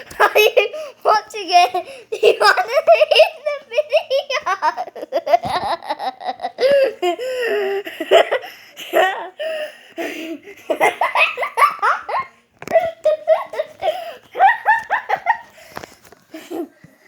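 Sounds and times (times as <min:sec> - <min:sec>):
person laughing hard: 0:02.6 - 0:09.4, 0:10.0 - 0:15.6
short breaths: 0:13.8 - 0:14.3, 0:15.4 - 0:16.1.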